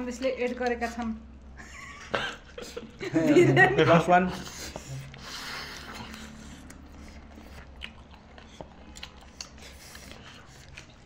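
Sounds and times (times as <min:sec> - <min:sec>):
chewing and munching: 0:04.4 - 0:11.0.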